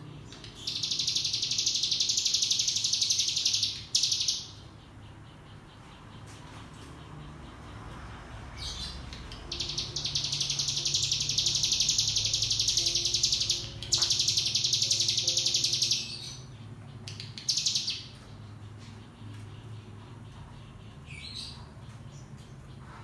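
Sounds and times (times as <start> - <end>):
bird rattling trill: 0.4 - 4.6, 8.8 - 16.4.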